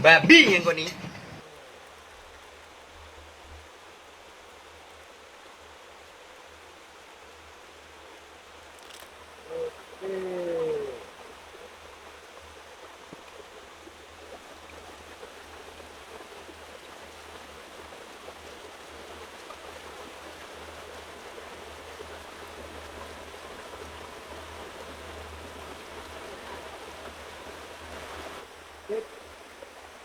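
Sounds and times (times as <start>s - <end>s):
stream flowing: 0.0s - 30.0s.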